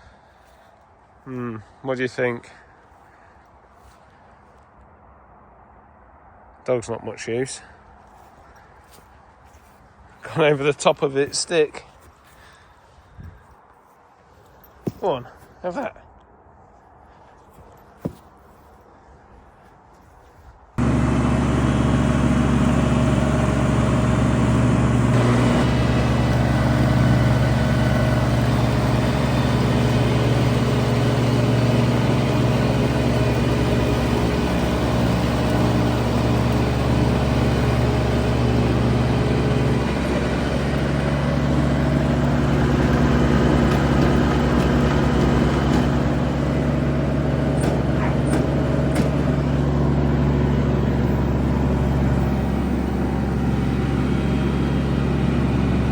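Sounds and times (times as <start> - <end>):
mower diesel engine running: 20.8 - 55.9.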